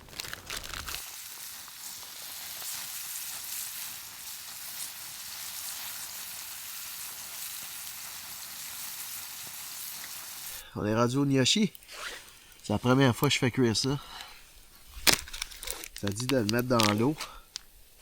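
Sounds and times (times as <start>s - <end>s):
steak sizzling in a pan: 0.5s - 10.6s.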